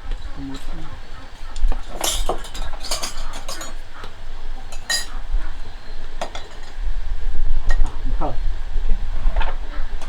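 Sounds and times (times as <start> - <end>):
hard objects clinking together: 1.5 - 5.2.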